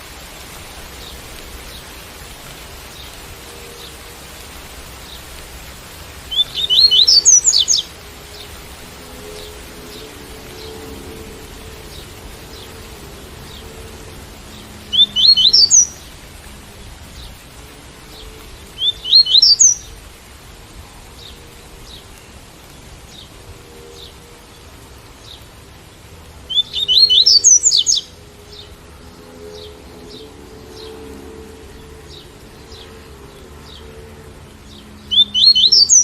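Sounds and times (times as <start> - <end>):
rain hiss: 0.0 - 36.0
bird singing rising phrases: 6.2 - 16.1, 18.7 - 19.9, 26.4 - 36.0.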